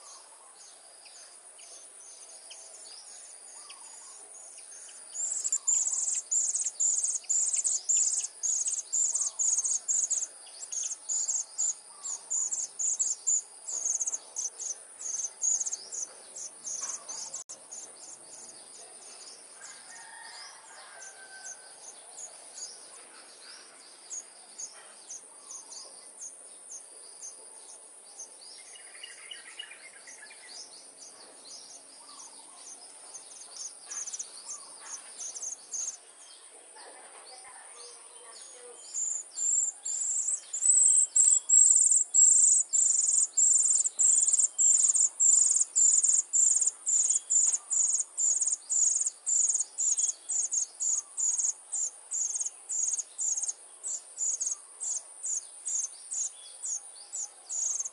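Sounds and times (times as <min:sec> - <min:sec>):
high insect drone: 0:37.3 - 0:57.9.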